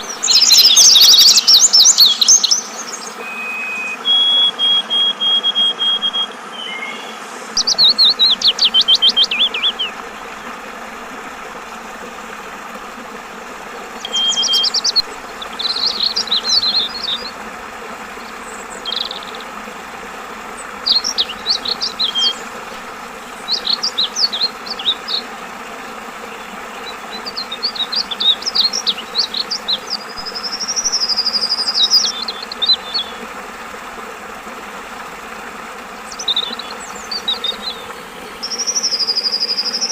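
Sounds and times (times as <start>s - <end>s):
bird singing chattering whistles: 0.0s - 10.0s, 14.0s - 17.3s
flowing water: 0.0s - 39.9s.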